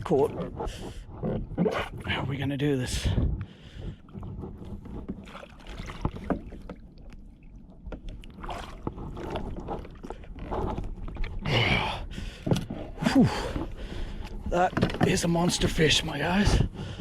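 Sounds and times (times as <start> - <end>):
water sloshing against kayak: 0.0 - 17.0
knocks and clicks on kayak: 12.4 - 15.8.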